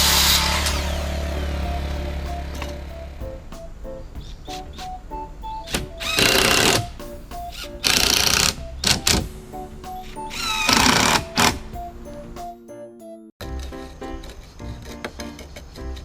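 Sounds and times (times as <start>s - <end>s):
power tool bursts with whine: 0.0s - 2.8s
background music: 0.0s - 16.0s.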